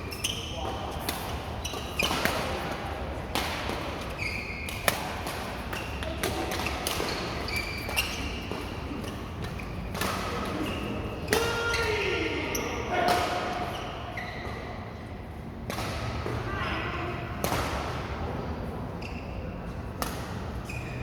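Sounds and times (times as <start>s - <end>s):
shoe squeaks: 0.0s - 0.7s, 1.6s - 2.2s, 4.1s - 4.9s, 6.7s - 11.0s, 12.5s - 14.8s, 19.0s - 19.5s, 20.6s - 21.0s
racket hitting shuttlecock: 1.0s - 11.8s, 15.6s - 16.4s, 17.4s - 18.1s, 20.0s - 20.6s.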